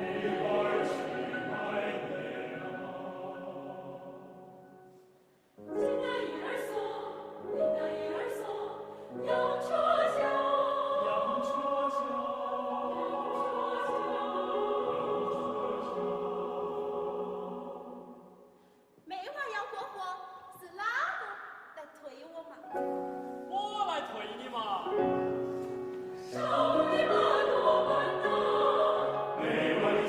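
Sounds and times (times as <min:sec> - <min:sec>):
choir singing folk song: 0:00.0 - 0:05.0, 0:05.6 - 0:18.6, 0:25.0 - 0:30.0.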